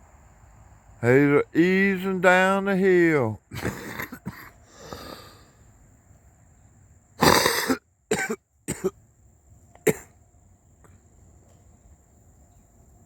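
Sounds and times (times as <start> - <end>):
man coughing: 3.5 - 4.6, 7.2 - 8.9, 9.9 - 10.1.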